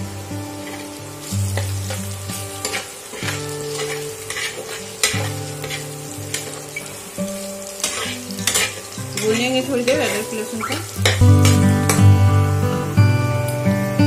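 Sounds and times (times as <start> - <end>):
onions sizzling in hot oil: 0.0 - 14.0
spatula scraping a pan: 0.6 - 11.8.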